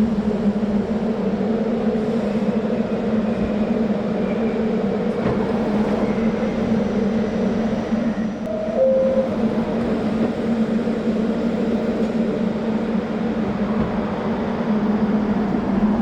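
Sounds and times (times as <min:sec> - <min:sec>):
electric train humming: 0:00.0 - 0:16.0
two-note tone: 0:08.5 - 0:09.5.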